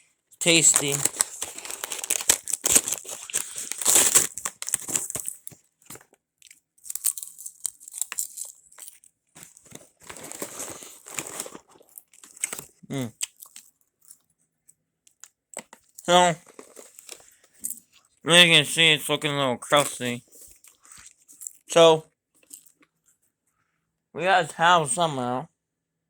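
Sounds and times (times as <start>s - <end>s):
popcorn bag crinkling: 0.4s - 14.2s, 15.1s - 17.8s, 19.7s - 21.7s
popcorn crunching being eaten: 0.4s - 14.2s, 15.1s - 17.8s, 19.8s - 21.7s, 22.4s - 22.9s.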